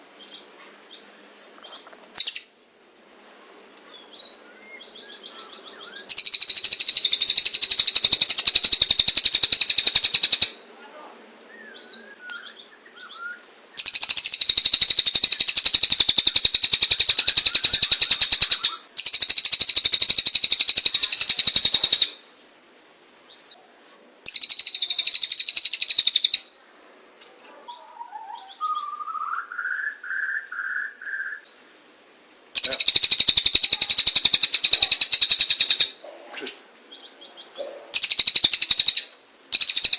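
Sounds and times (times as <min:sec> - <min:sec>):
soft bird chirps: 0:00.2 - 0:02.6, 0:03.8 - 0:10.5, 0:11.5 - 0:22.2, 0:23.3 - 0:23.6, 0:24.3 - 0:26.5, 0:27.5 - 0:31.7, 0:32.6 - 0:36.0, 0:36.9 - 0:39.9
fast high-pitched bird trills: 0:02.2 - 0:02.6, 0:04.9 - 0:10.6, 0:13.8 - 0:22.2, 0:24.3 - 0:26.5, 0:32.6 - 0:36.0, 0:37.0 - 0:39.9.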